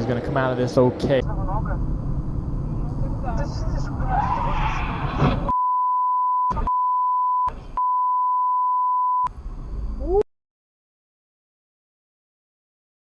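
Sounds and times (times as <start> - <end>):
censor bleep: 5.5 - 9.3.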